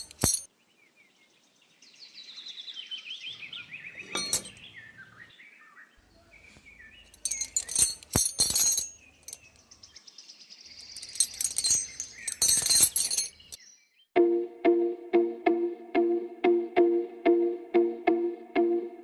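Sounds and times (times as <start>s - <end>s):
high jingly rattling: 0.0s - 0.5s, 4.1s - 4.6s, 7.2s - 9.5s, 10.8s - 13.6s
small birds chirping: 0.0s - 14.1s.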